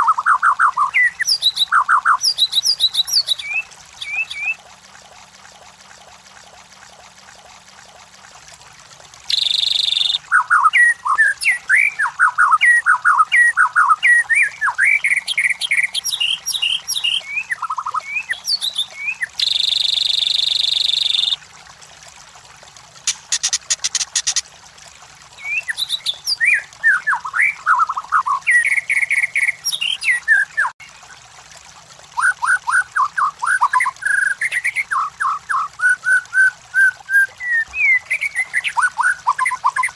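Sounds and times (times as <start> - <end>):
bird whistling song: 0.0 - 4.6, 9.3 - 21.4, 25.4 - 30.7, 32.2 - 39.9.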